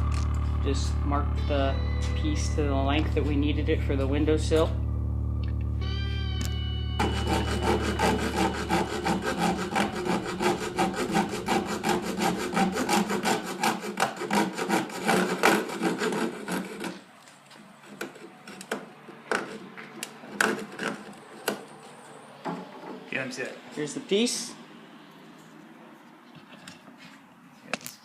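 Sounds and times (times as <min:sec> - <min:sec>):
hand saw cutting wood: 0:07.0 - 0:17.1, 0:17.8 - 0:21.7.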